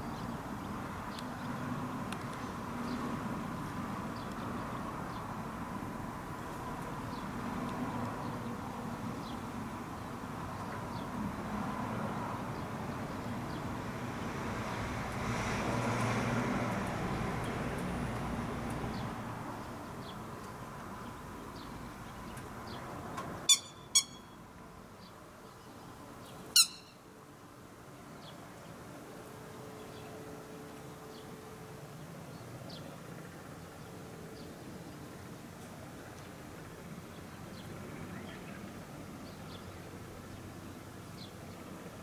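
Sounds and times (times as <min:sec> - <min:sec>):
passing vehicle rumble: 0:00.2 - 0:24.4
faint bird chirps: 0:23.5 - 0:24.4, 0:26.6 - 0:27.0
sharp bird calls: 0:23.5 - 0:24.4, 0:26.3 - 0:27.0.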